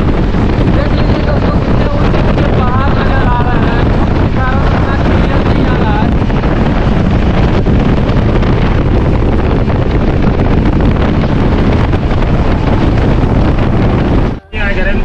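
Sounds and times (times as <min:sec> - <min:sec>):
train rumbling at speed: 0:00.0 - 0:15.0
wind rushing over microphone: 0:00.0 - 0:15.0.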